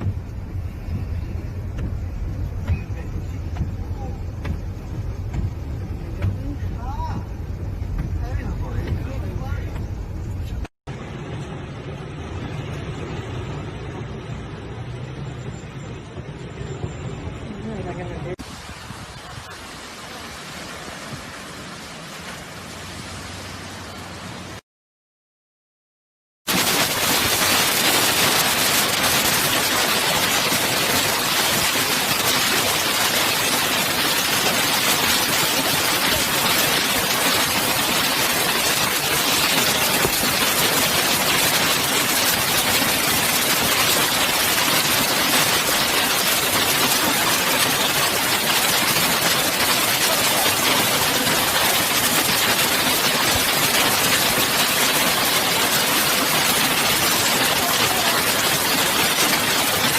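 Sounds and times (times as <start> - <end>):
hail and rain pelting: 0.0 - 9.8, 26.5 - 59.9.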